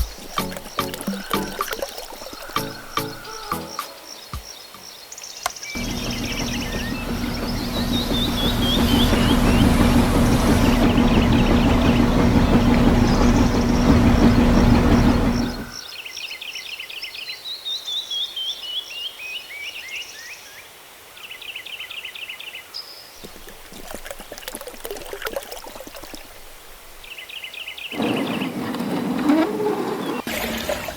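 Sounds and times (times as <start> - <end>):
pouring water: 0.0 - 3.4, 5.8 - 15.8, 23.2 - 27.1, 30.2 - 30.9
water pump motor humming: 0.0 - 3.4, 5.8 - 15.8, 23.2 - 27.1, 30.2 - 30.9
birds chirping: 0.0 - 16.0.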